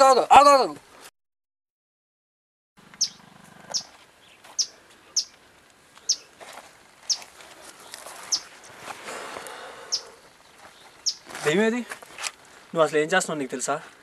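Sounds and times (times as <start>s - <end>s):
bird chirping: 2.9s - 5.4s, 6.0s - 6.3s, 7.1s - 8.8s, 9.8s - 11.4s.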